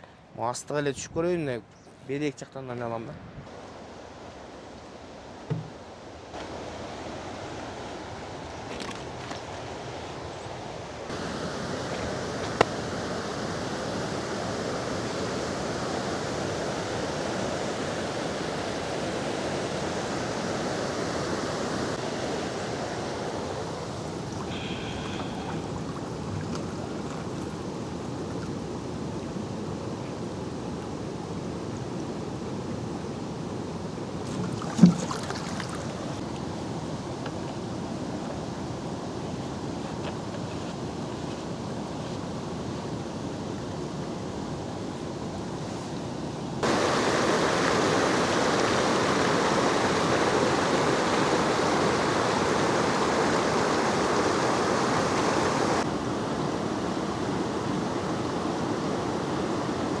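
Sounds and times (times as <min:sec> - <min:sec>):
steady rain: 0:11.1 - 0:26.3, 0:46.6 - 0:55.9.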